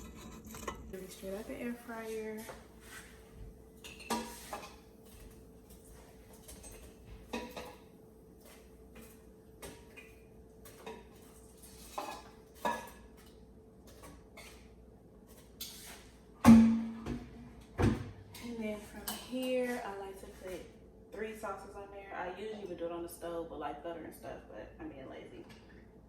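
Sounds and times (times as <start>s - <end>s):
utensils and dishes clicking: 0.0s - 1.0s.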